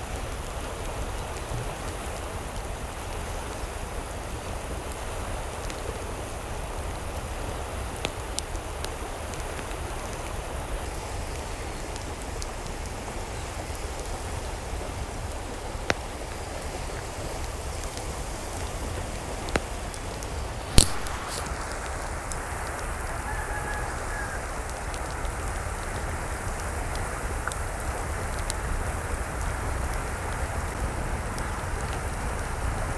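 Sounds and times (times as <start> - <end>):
loud crack: 20.7 - 21.6.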